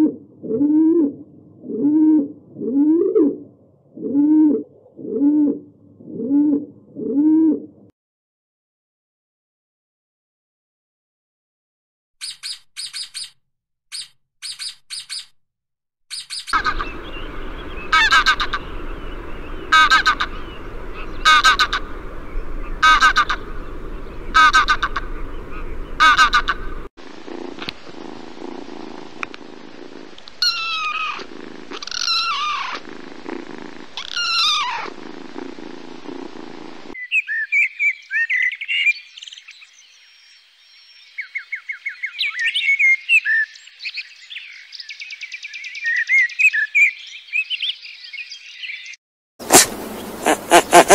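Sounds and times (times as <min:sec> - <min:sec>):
blackbird warbling song: 0:12.2 - 0:15.3, 0:16.1 - 0:26.9, 0:37.0 - 0:50.9
bird chirps: 0:12.2 - 0:15.4, 0:16.1 - 0:26.8, 0:37.0 - 0:50.9
falling calls: 0:16.4 - 0:33.1, 0:33.9 - 0:37.0, 0:49.4 - 0:50.9
loud animal calls: 0:16.5 - 0:36.5, 0:49.4 - 0:50.9.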